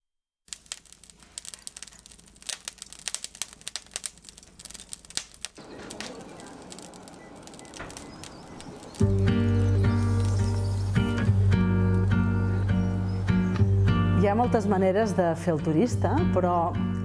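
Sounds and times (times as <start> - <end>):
sharp clicks and rustles: 0.5 - 11.3
steady hiss: 0.5 - 14.1.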